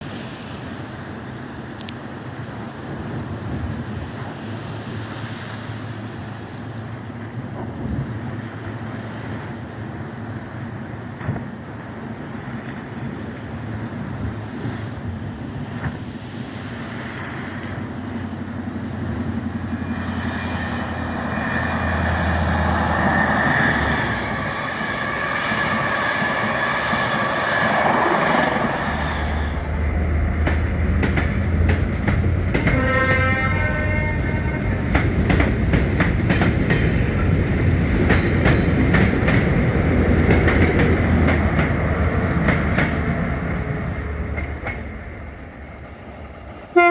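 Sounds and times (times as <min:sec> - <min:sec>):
train passing: 0:00.0 - 0:46.9
train horn: 0:19.7 - 0:30.2, 0:32.4 - 0:35.0, 0:46.7 - 0:46.9.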